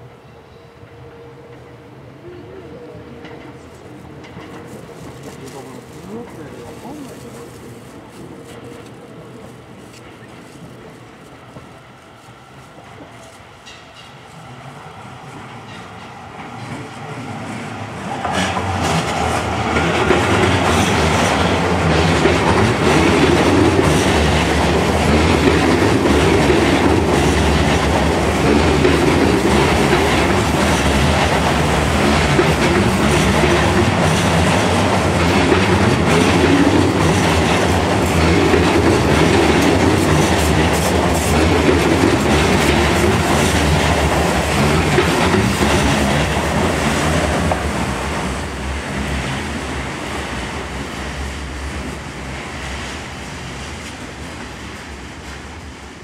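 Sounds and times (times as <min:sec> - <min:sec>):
train wheels clattering over rail joints: 0:18.1 - 0:48.1.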